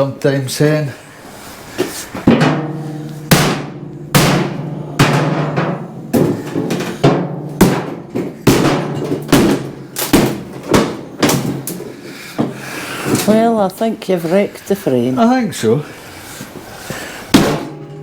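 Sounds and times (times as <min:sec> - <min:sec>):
heavy blows on wooden crate: 0:02.2 - 0:13.5, 0:16.9 - 0:17.9.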